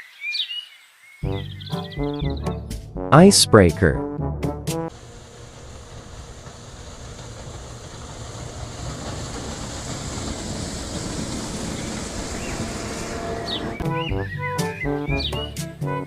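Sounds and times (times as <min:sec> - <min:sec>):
ship rumble with hiss: 0:04.9 - 0:14.1.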